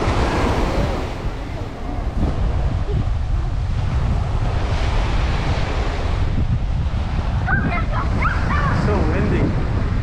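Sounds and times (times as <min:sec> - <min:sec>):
wind buffeting microphone: 0:00.0 - 0:10.0
windy seaside background: 0:00.0 - 0:10.0.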